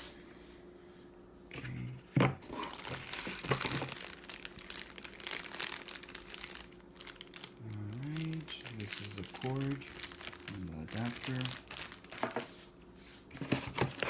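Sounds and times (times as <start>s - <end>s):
packaging crinkling: 2.4s - 12.7s, 13.4s - 14.0s.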